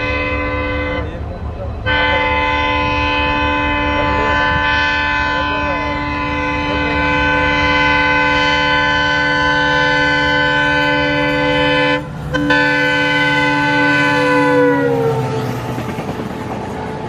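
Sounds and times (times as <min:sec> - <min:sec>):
locomotive air horn blast: 0:00.0 - 0:01.2, 0:01.8 - 0:15.6
train rumbling: 0:00.0 - 0:17.0.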